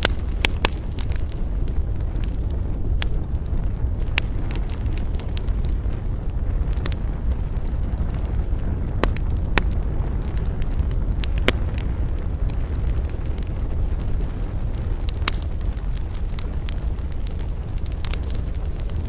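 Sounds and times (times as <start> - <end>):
burning wood crackling and popping: 0.0 - 19.0
campfire flames rumbling: 0.0 - 19.0.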